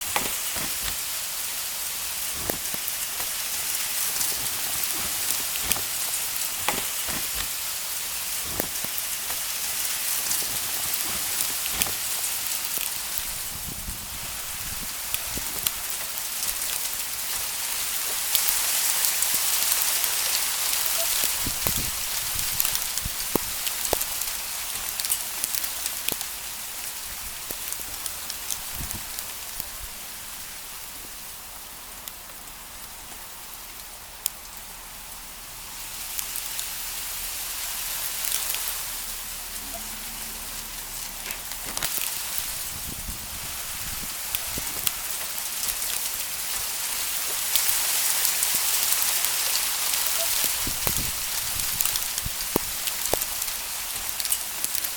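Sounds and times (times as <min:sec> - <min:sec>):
hailstones striking surfaces: 0:00.0 - 0:32.9, 0:41.0 - 0:54.9
rain hissing: 0:00.0 - 0:54.9.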